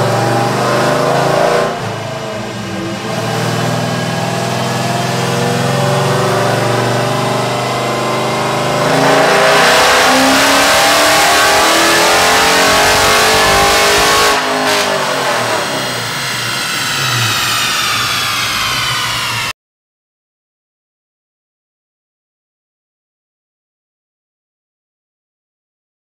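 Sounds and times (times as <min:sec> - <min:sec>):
car engine revving on dyno: 0:00.0 - 0:19.5
engine winding down whine: 0:00.0 - 0:19.6.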